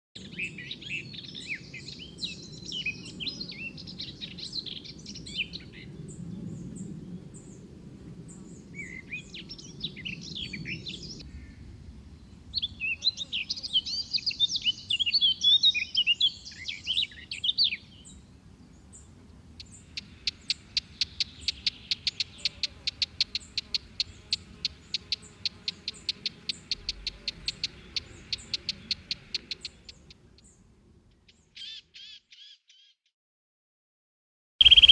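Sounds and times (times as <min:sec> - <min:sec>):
birds chirping and twittering: 0:00.2 - 0:33.0, 0:34.6 - 0:34.9
bird repeating sharp notes: 0:34.6 - 0:34.9.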